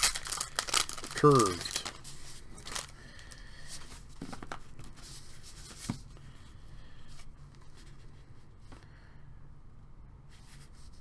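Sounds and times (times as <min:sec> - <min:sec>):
cards rustling: 0:00.0 - 0:03.5.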